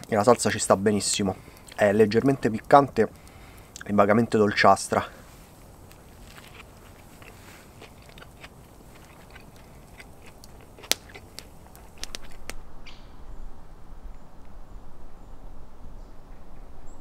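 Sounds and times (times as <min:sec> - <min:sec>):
crunchy chewing: 0:05.0 - 0:12.6.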